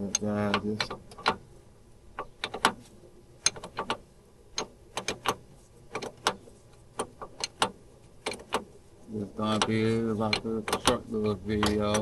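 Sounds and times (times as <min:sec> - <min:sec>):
hand ratchet clicking: 0:09.5 - 0:12.0.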